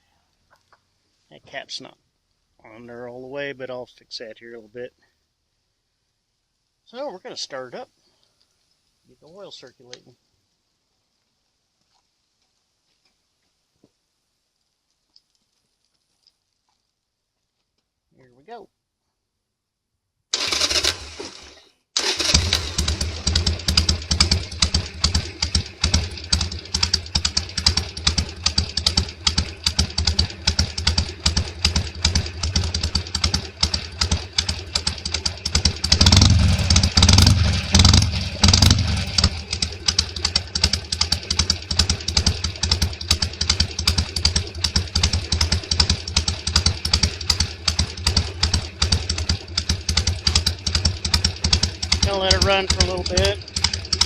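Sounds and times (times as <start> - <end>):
motorcycle engine idling and revving: 20.4 - 54.0.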